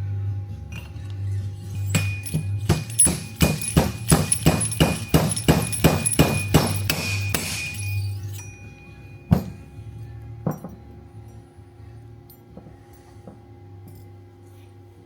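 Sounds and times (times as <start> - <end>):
rhythmic metal knocking: 1.6 - 9.8.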